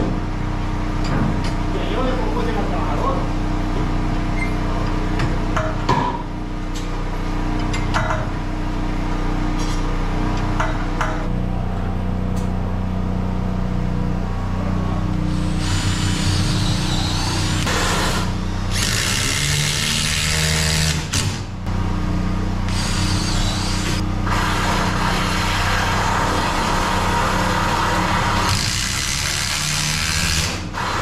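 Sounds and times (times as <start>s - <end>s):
steady low hum: 0.0s - 31.0s
power drill running: 15.3s - 21.3s, 22.7s - 31.0s.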